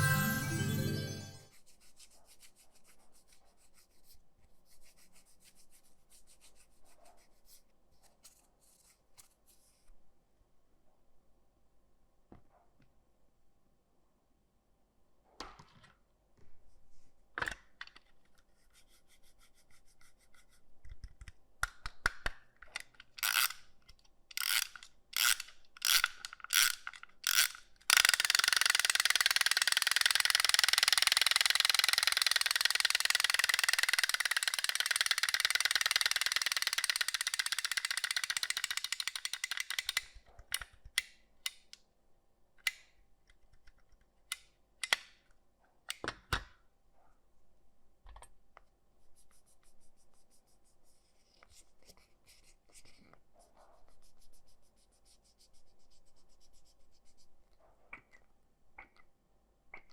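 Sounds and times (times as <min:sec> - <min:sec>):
geared mechanism whirring and ticking: 0:24.4 - 0:40.0.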